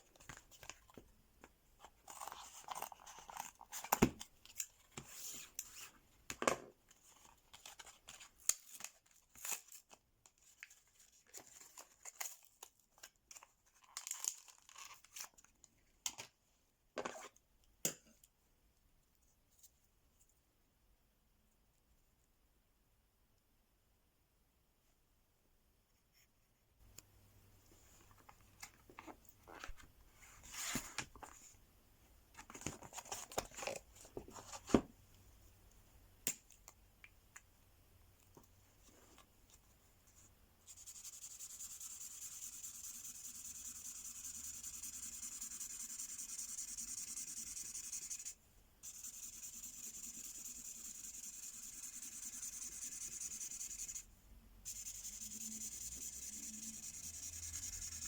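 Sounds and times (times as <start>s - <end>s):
pen scratching on paper: 40.7s - 54.0s, 54.6s - 58.0s.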